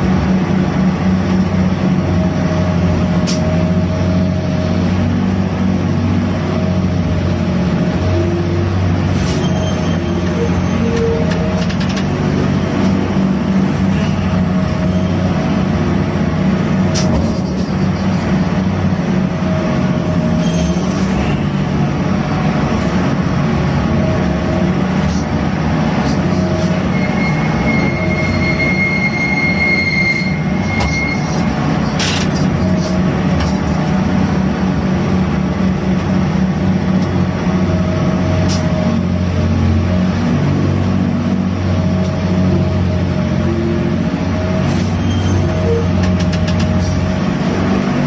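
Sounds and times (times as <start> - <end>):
crane machinery running: 0.0 - 48.0
high metallic squeal: 9.2 - 11.7, 13.8 - 15.3, 20.1 - 21.4, 26.3 - 33.0, 44.6 - 47.0.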